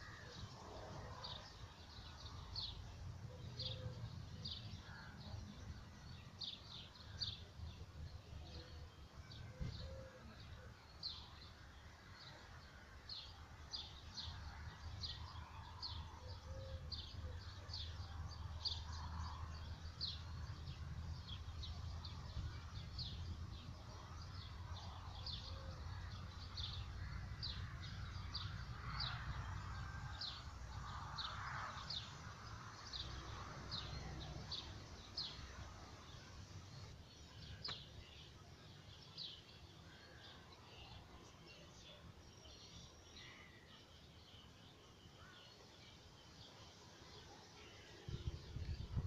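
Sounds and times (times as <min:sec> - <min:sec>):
songbird chirping: 0:00.0 - 0:49.0.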